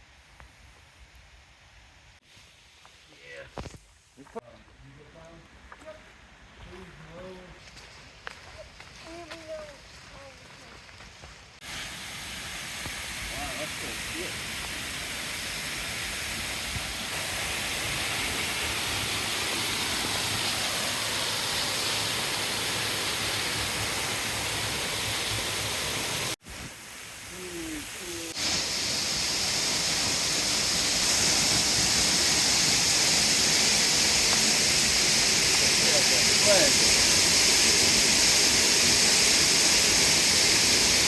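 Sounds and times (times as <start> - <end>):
river rushing: 11.7 - 26.4, 27.4 - 41.0.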